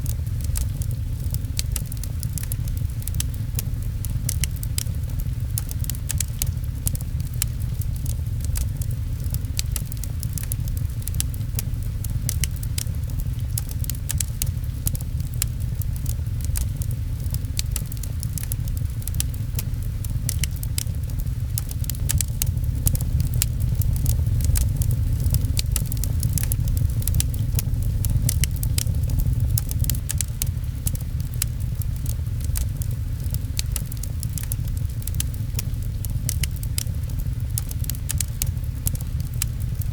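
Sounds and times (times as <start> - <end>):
gentle rain patter: 0.0 - 39.9
steady low rumble: 0.0 - 39.9
wood fire crackling and popping: 0.0 - 39.9.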